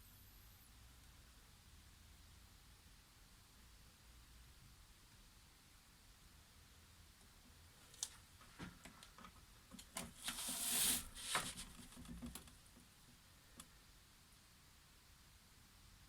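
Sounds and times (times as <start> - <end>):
short rustling swish: 10.3 - 11.7.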